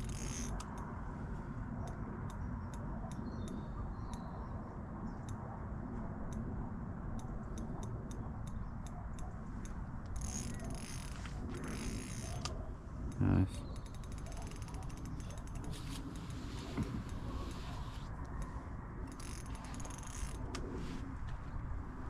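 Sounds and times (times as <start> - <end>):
fishing reel ratchet clicking: 0.0 - 0.8, 10.1 - 12.5, 13.7 - 16.3, 19.1 - 20.5.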